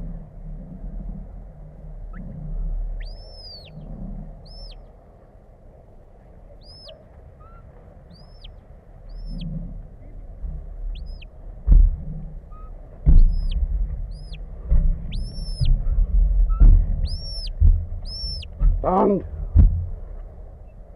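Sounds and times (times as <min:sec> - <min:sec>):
shepherd whistling: 0:03.0 - 0:04.8, 0:06.6 - 0:09.5, 0:10.9 - 0:11.3, 0:12.5 - 0:14.4, 0:15.0 - 0:18.6
loud thump: 0:10.4 - 0:20.3.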